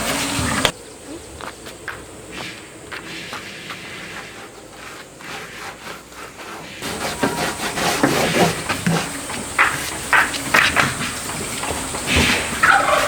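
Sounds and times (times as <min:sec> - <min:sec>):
light scraping: 0:02.4 - 0:13.0
poultry calling: 0:06.4 - 0:13.0
scattered knocks: 0:06.8 - 0:13.0
turkeys gobbling: 0:08.3 - 0:13.0.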